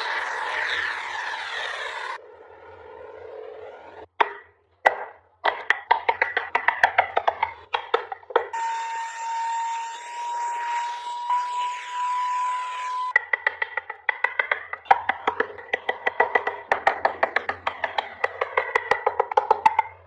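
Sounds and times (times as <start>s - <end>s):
hand tools tapping wood: 4.2s - 8.6s, 13.2s - 20.0s.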